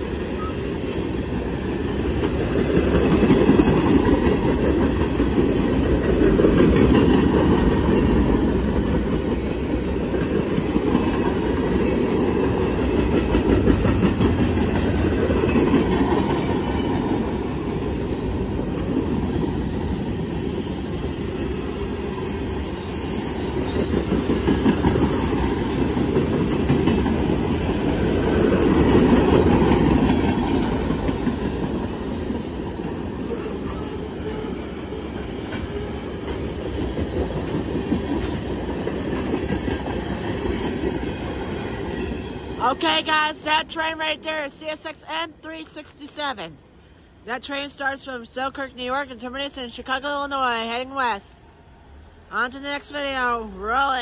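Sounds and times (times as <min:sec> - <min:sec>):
freight train rolling on rails: 0:00.0 - 0:54.0
wheels clacking over rail joints: 0:02.1 - 0:17.4.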